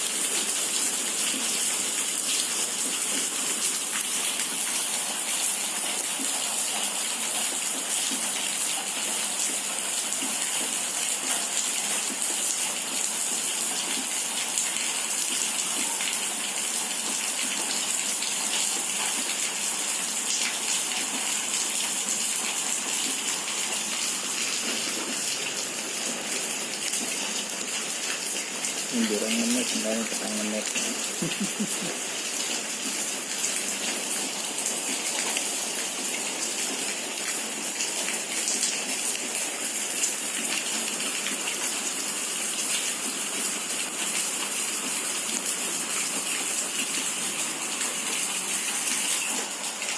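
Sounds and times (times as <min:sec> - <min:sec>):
rain hissing: 0:15.8 - 0:42.1.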